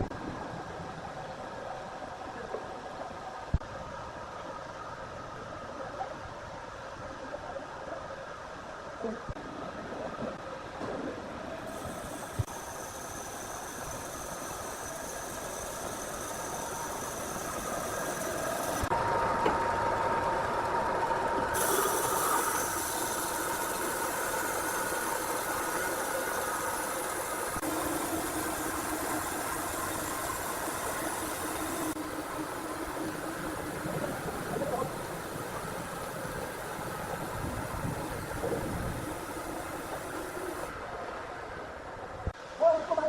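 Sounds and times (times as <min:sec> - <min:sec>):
machinery humming: 0:11.4 - 0:41.2
whining tones: 0:11.6 - 0:40.8.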